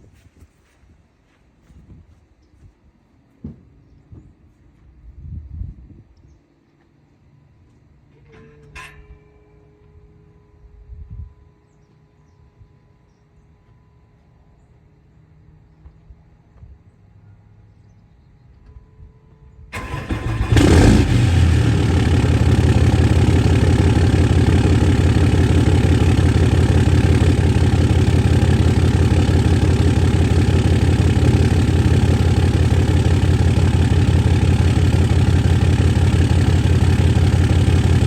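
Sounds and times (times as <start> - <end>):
diesel engine cranking: 19.7 - 38.0
diesel engine idling: 19.8 - 38.0.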